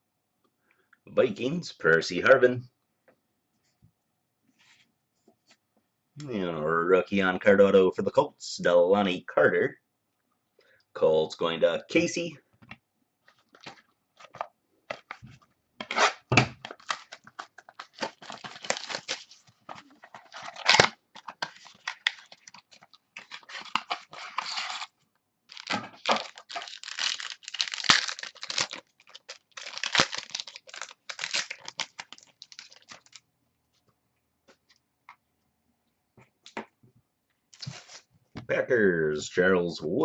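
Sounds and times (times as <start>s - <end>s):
card pack wrappers crinkling: 13.3s - 33.2s.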